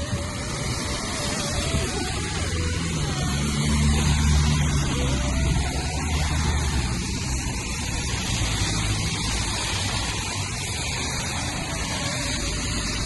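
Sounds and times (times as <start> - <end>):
rainfall: 0.0 - 13.0
traffic on wet road: 0.0 - 13.0.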